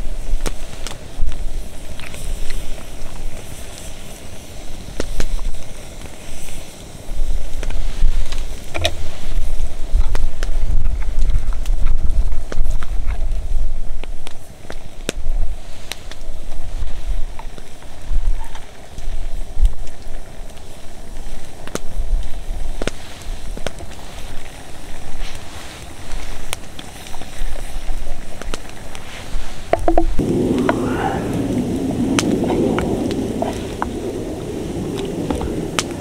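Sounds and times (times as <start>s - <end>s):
campfire crackling and popping: 0.0s - 36.0s
low rumble: 29.9s - 36.0s.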